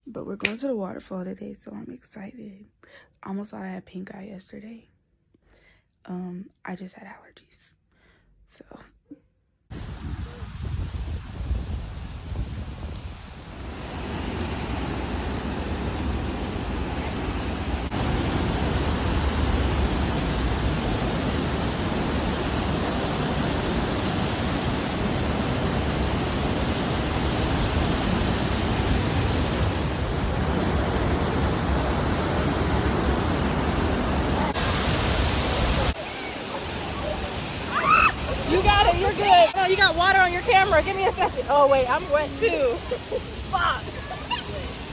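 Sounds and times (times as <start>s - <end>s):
waterfall roaring: 13.0s - 44.9s.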